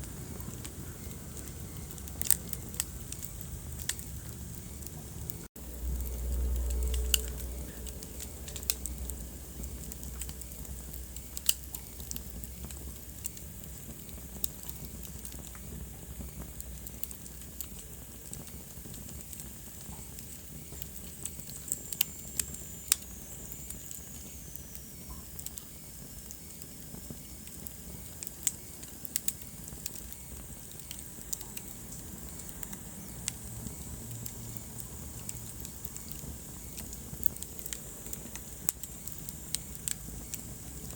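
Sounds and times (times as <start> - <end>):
low rumble: 0.0 - 12.8
wood fire crackling: 0.0 - 40.9.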